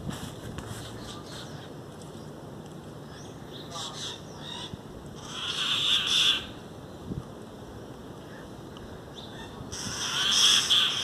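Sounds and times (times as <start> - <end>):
raspy bird screeches: 3.8 - 6.6, 9.4 - 11.0.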